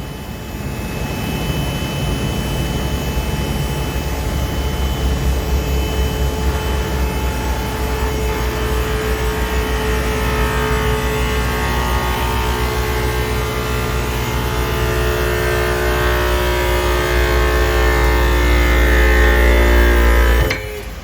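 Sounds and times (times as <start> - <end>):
hydraulic pump humming and whining: 0.0 - 21.0.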